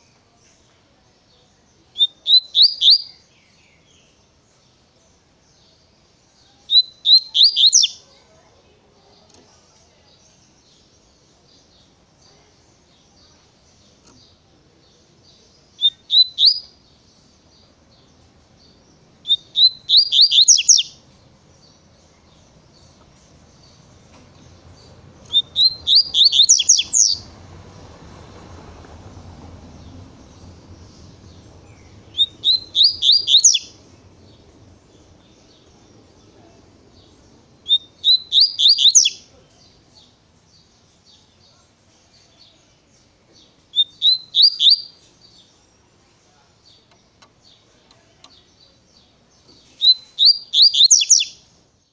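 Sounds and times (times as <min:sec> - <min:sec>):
soft bird twittering: 0:00.0 - 0:08.4, 0:09.0 - 0:27.6, 0:28.2 - 0:51.9
bird singing rapid high notes: 0:06.7 - 0:08.0, 0:19.2 - 0:21.0, 0:24.5 - 0:27.3, 0:29.8 - 0:36.2, 0:37.0 - 0:39.3, 0:43.7 - 0:45.0, 0:49.8 - 0:51.4.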